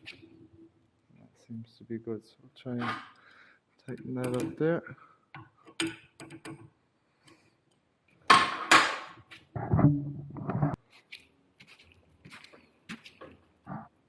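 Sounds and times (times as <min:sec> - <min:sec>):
small metal clicks: 0:03.8 - 0:04.7, 0:05.4 - 0:08.2.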